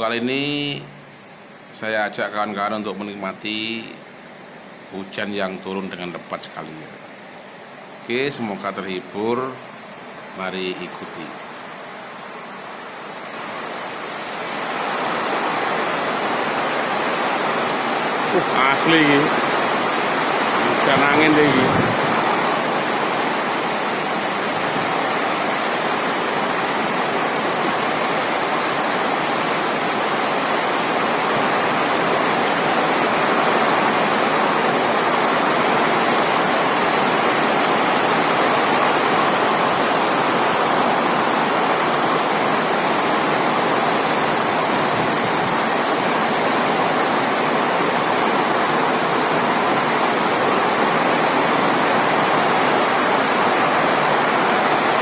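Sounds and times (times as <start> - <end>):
heavy rain pouring: 9.9 - 55.0
wind: 11.4 - 55.0.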